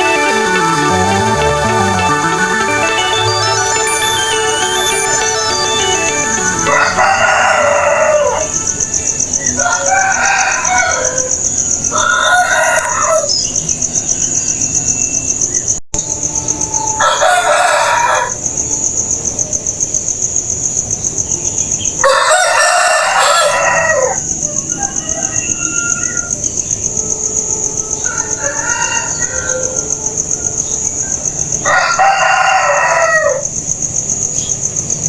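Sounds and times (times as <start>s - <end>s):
high pulsing trill: 0.0s - 8.5s
roosters crowing: 2.6s - 13.4s, 16.8s - 18.4s, 22.0s - 26.4s, 27.8s - 30.5s, 31.6s - 33.5s.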